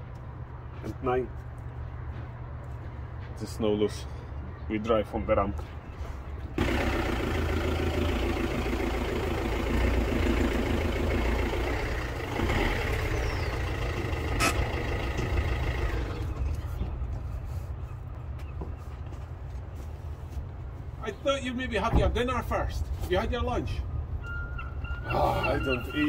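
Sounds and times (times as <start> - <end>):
car engine running: 6.6 - 16.7.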